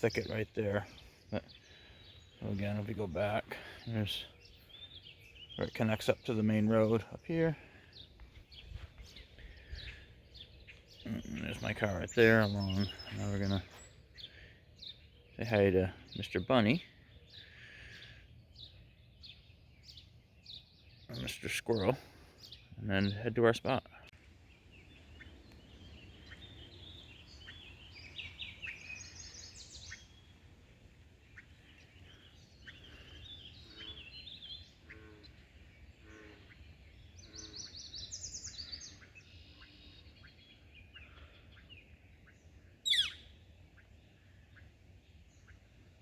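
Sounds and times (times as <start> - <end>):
songbirds singing: 0.0 - 46.0
loud sharp bird chirp: 24.7 - 30.5, 31.3 - 45.6.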